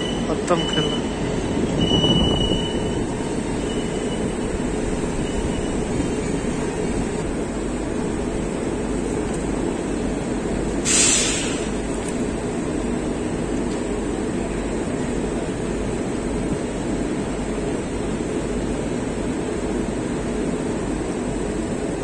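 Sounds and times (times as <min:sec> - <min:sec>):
high wheel squeal: 0:00.0 - 0:06.9
train wheels rumbling on rail: 0:00.0 - 0:22.0
short loud hiss: 0:10.8 - 0:11.8.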